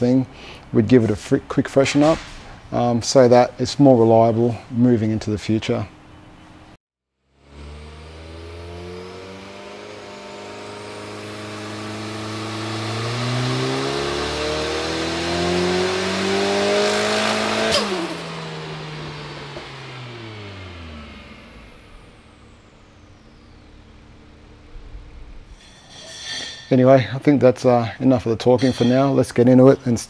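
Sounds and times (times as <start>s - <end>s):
turbocharged car engine revving: 7.2s - 25.6s
sharp exhaust crack: 7.4s - 25.8s.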